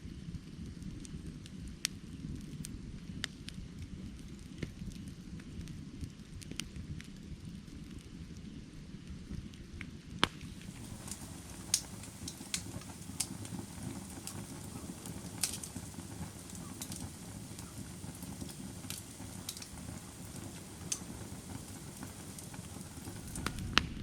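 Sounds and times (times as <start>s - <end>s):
firewood crackling and popping: 0.1s - 24.0s
flames rumbling: 0.1s - 24.0s.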